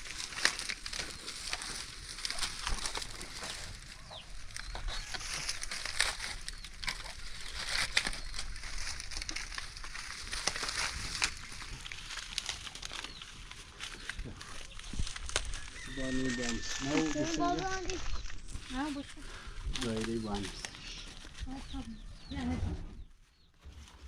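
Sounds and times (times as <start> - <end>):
chickens clucking: 1.0 - 9.4.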